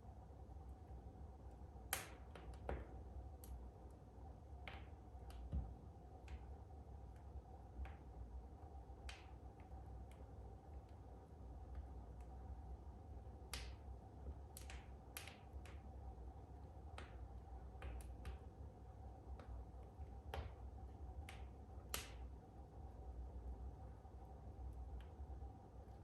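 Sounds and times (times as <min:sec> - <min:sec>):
wood crackling in fireplace: 0:00.0 - 0:26.0.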